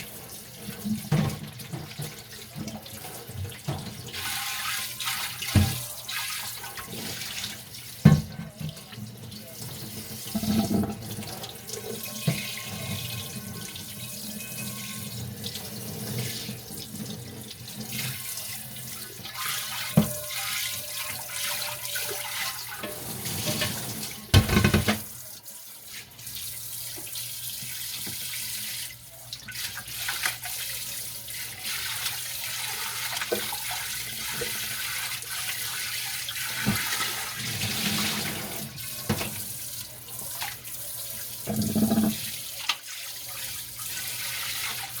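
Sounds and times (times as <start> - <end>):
scrubbing dishes: 0.0 - 25.2, 31.4 - 45.0
tap running into sink: 5.4 - 5.9, 8.0 - 8.9, 22.8 - 25.1, 36.6 - 39.5, 41.4 - 42.8
dishes knocking against sink: 8.1 - 8.8, 22.8 - 25.1, 41.5 - 42.2.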